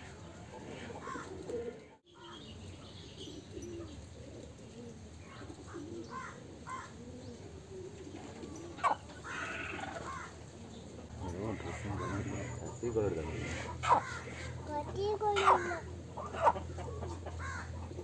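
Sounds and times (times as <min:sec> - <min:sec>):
bird cooing: 0:00.0 - 0:18.0.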